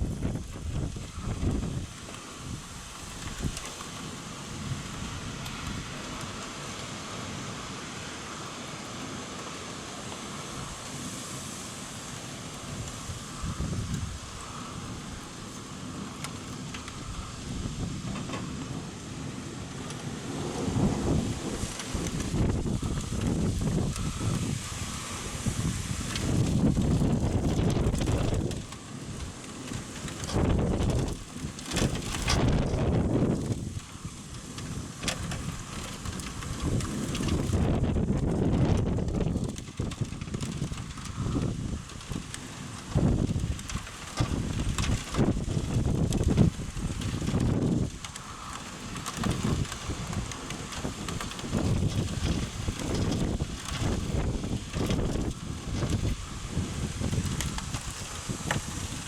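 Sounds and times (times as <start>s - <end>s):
wind and rain hiss: 0.0s - 59.0s
rolling thunder rumble: 19.6s - 29.4s, 30.2s - 42.3s.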